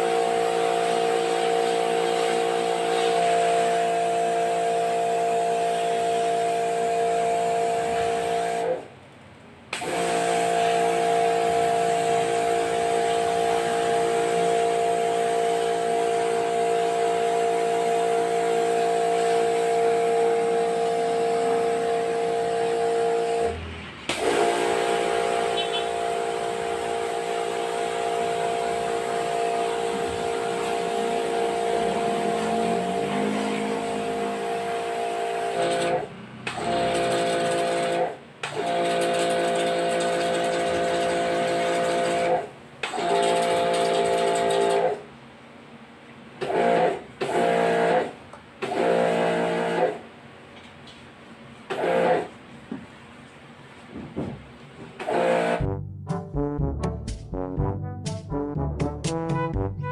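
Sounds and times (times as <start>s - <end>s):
pressure washer motor hum: 0.0s - 8.8s, 9.7s - 45.0s, 46.4s - 49.9s, 55.0s - 55.6s.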